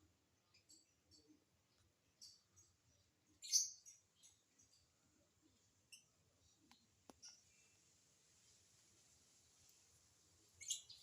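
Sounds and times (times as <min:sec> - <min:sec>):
lovebird chirping: 0:02.2 - 0:04.9, 0:10.4 - 0:11.0.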